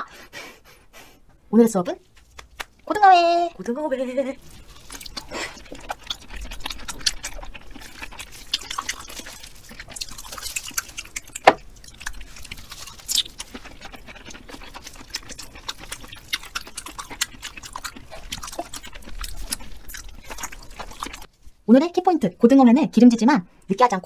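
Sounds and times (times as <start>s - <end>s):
wet chewing mouth clicks: 4.4s - 21.3s.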